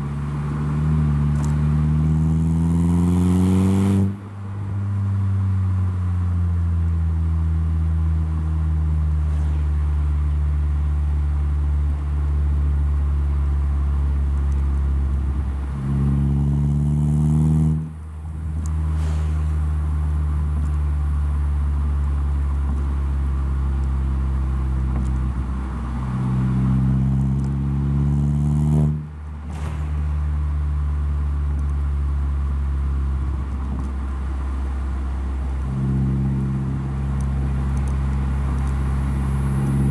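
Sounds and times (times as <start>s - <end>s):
car engine and exhaust: 0.0s - 39.9s.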